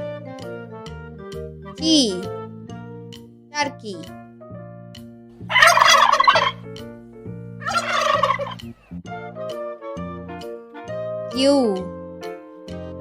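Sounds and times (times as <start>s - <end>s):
light background music: 0.0s - 13.0s
turkey gobbling: 5.4s - 6.6s, 7.6s - 8.9s.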